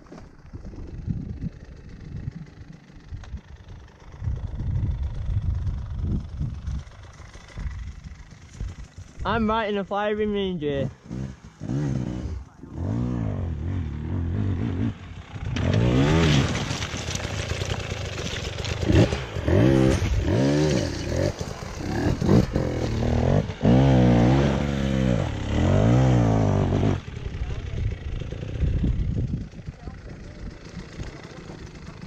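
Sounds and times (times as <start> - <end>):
motorcycle engine revving hard: 10.9 - 32.0.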